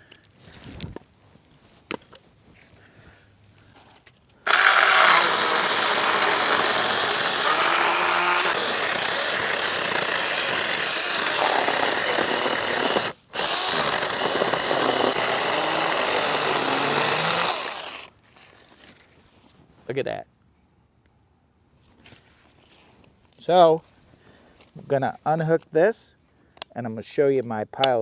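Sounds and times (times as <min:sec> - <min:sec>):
electric chainsaw cutting wood: 0:04.5 - 0:18.1.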